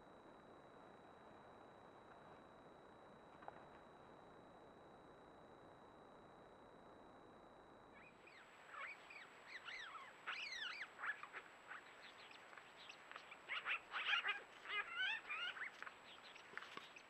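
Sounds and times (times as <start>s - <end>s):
birds chirping: 8.0s - 17.0s.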